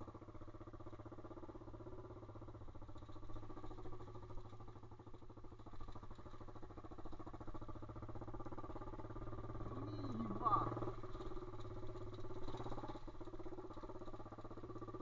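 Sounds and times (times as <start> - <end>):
small motorcycle engine running: 0.0 - 15.0.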